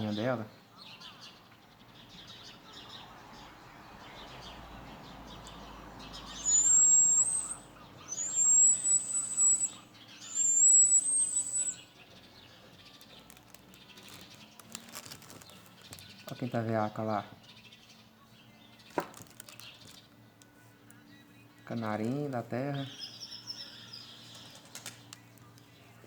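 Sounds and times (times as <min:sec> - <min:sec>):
bird high thin whistles: 0:06.3 - 0:11.9.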